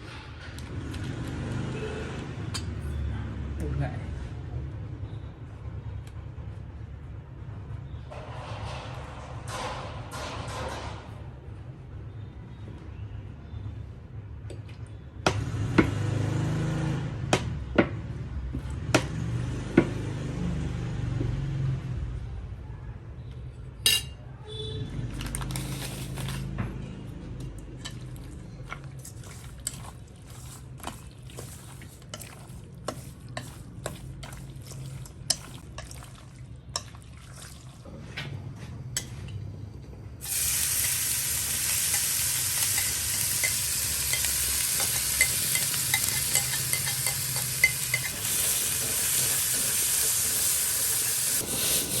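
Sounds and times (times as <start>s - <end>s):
food sizzling in hot oil: 40.2s - 52.0s
utensils knocking against dishes: 42.0s - 49.0s.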